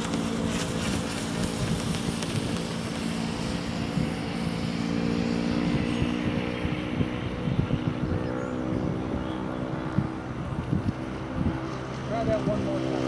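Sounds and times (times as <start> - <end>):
boat hull skimming water: 0.0 - 5.0.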